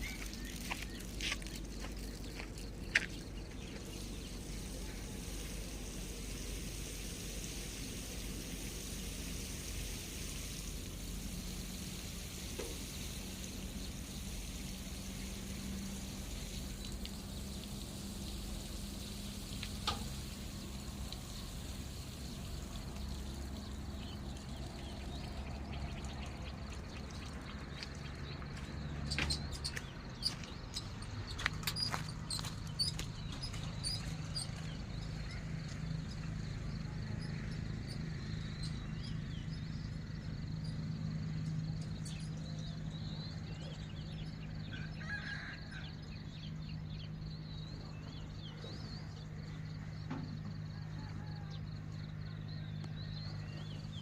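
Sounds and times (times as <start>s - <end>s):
water pouring: 0.0s - 28.4s.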